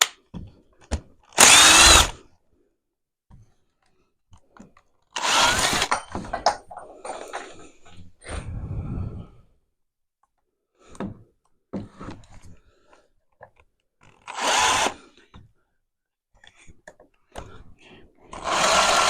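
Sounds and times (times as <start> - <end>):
power tool running: 1.4 - 2.2, 5.2 - 5.9, 18.4 - 19.0.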